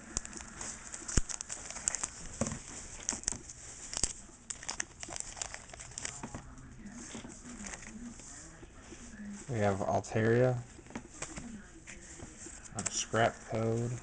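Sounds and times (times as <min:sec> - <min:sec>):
foil wrapper crinkling and tearing: 0:00.0 - 0:08.4, 0:12.2 - 0:14.0.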